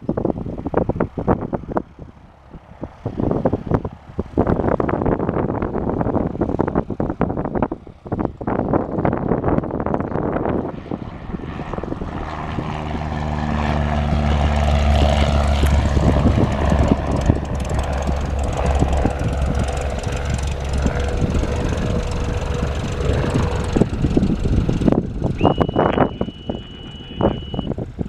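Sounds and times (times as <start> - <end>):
propeller plane engine: 0.0 - 28.0
phone vibrating buzz: 25.4 - 27.7.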